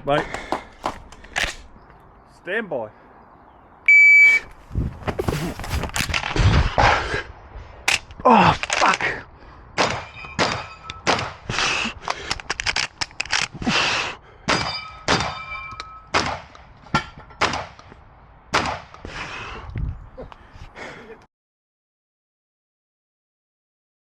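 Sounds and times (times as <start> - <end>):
shotgun shots: 9.8 - 11.5, 14.5 - 15.5, 16.1 - 16.5, 17.4 - 17.8, 18.5 - 18.9
steel plates ringing clang: 10.0 - 11.2, 14.5 - 16.1.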